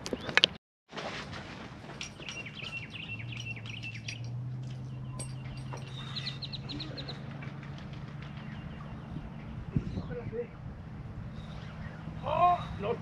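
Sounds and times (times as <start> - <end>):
birds chirping: 0.0 - 0.6, 2.0 - 13.0.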